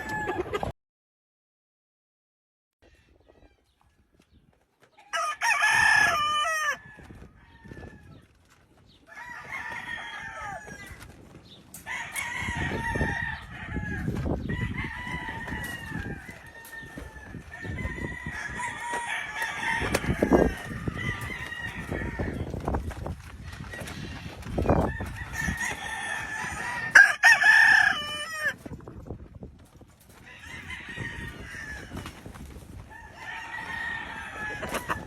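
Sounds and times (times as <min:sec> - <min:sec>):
roosters crowing: 0:00.0 - 0:00.7, 0:04.9 - 0:28.9, 0:29.9 - 0:35.0.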